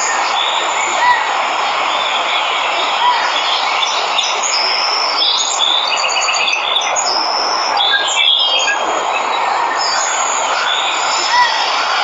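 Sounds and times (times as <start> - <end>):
waterfall rushing: 0.0 - 6.0
birds chirping and trilling: 0.0 - 12.0.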